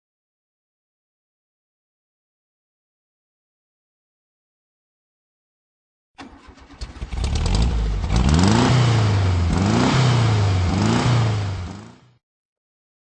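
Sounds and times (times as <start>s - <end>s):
car engine revving: 6.2s - 12.2s.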